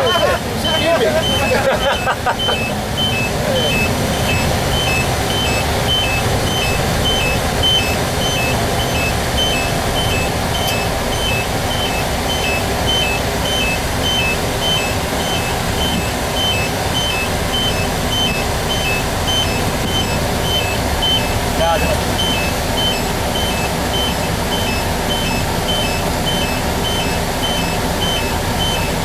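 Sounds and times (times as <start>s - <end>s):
truck engine and road rumble: 0.0s - 29.0s
turn signal beeping: 0.0s - 29.0s.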